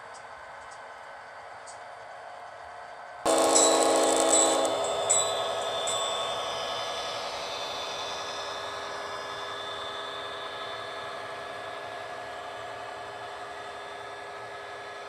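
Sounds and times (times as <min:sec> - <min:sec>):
train rolling past: 0:02.9 - 0:15.0
mechanical whine: 0:03.3 - 0:15.0.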